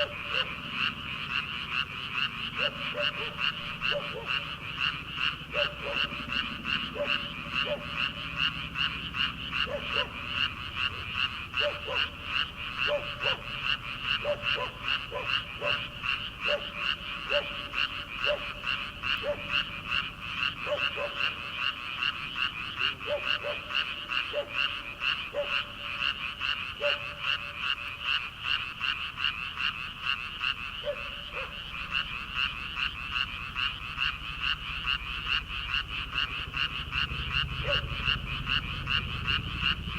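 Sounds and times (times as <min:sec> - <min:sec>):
frogs chorus high pulsing: 0:00.0 - 0:39.9
lower-pitched frog calls: 0:00.0 - 0:39.9.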